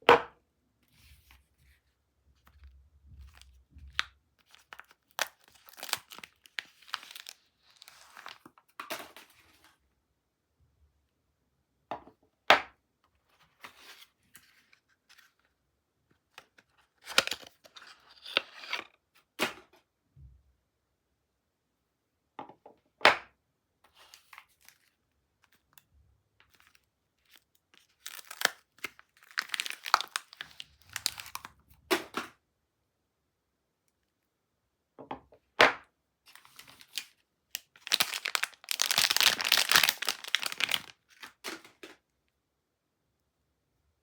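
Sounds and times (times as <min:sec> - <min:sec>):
packaging crinkling and tearing: 0:03.3 - 0:08.5, 0:17.0 - 0:18.8, 0:26.5 - 0:31.5, 0:36.3 - 0:41.9.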